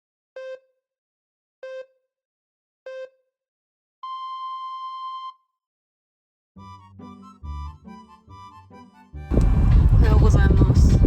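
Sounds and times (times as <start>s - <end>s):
electronic countdown beeps: 0.4s - 0.7s, 1.6s - 2.0s, 2.9s - 3.2s, 4.0s - 5.4s.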